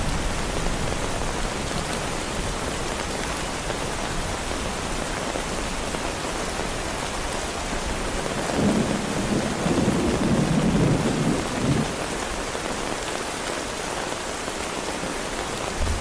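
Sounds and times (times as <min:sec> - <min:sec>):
heavy rain: 0:00.0 - 0:16.0
thunder rumble: 0:08.5 - 0:12.0.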